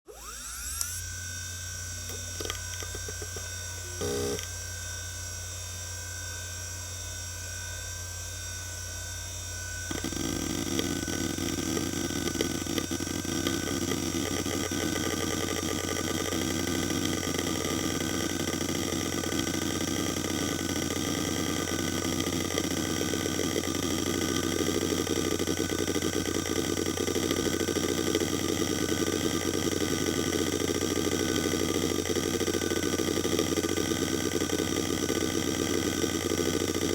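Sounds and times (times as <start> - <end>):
hard drive spindle whine: 0.1 - 5.5, 8.3 - 36.9
hard drive heads chattering: 9.9 - 36.9.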